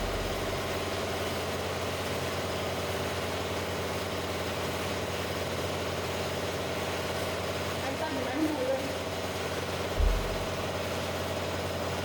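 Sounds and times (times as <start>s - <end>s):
air compressor running: 0.0s - 1.3s, 10.0s - 10.8s.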